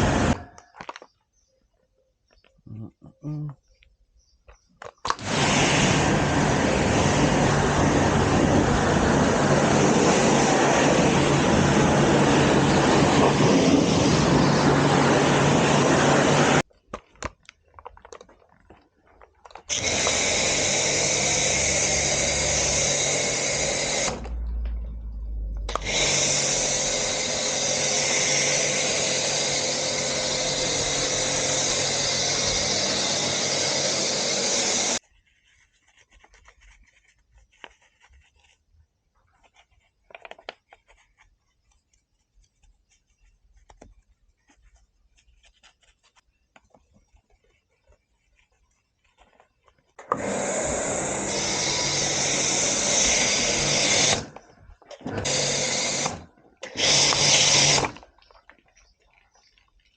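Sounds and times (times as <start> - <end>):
cleaning machine motor running: 0.0 - 0.5, 5.2 - 16.6, 19.7 - 24.5, 25.7 - 35.0, 50.1 - 54.4, 55.0 - 58.0
faint clicks and handling noises: 35.0 - 50.1.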